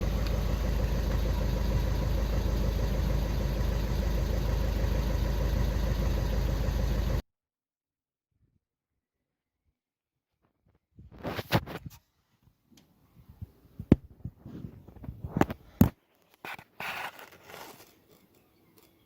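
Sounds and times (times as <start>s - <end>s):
car engine idling: 0.0s - 7.2s.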